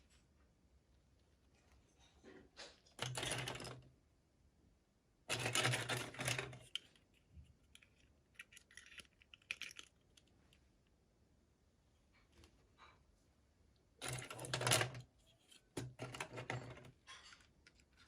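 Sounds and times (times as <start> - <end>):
small plastic clicks: 5.3 - 10.6.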